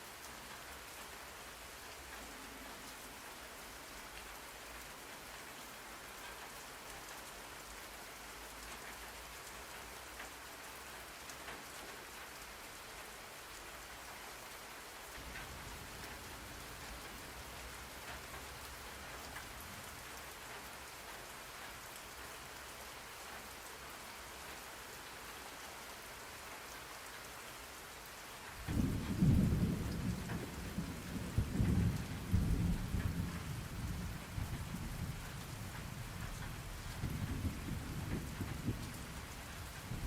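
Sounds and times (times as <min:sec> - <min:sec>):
steady rain: 0:00.0 - 0:40.0
thunder rumbling: 0:28.6 - 0:40.0.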